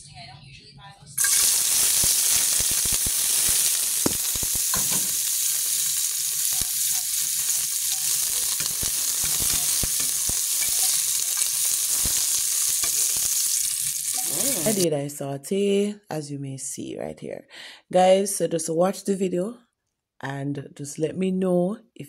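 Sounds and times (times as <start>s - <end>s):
vegetables sizzling in oil: 1.2s - 14.8s
spoon scraping metal pot: 7.9s - 11.8s, 14.1s - 14.8s.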